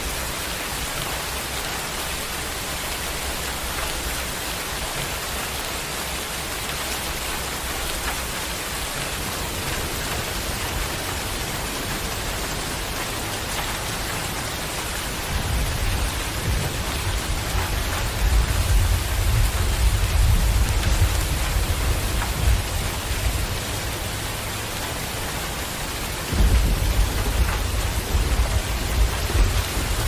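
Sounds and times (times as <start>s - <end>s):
heavy rain pouring: 0.0s - 30.0s
low rumble: 26.3s - 30.0s.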